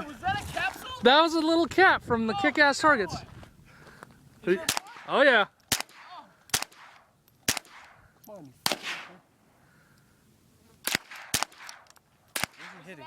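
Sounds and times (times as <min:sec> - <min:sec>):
rifle shots cracking: 0:04.6 - 0:08.0, 0:08.6 - 0:09.2, 0:10.8 - 0:13.0.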